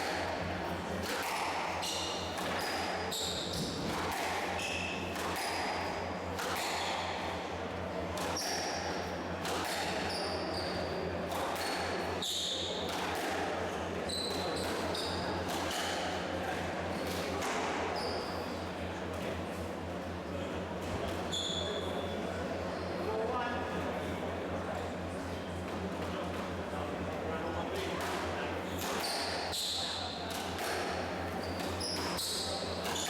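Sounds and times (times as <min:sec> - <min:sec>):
shoes squeaking on court floor: 0:01.8 - 0:04.0, 0:21.3 - 0:22.1, 0:31.2 - 0:33.0.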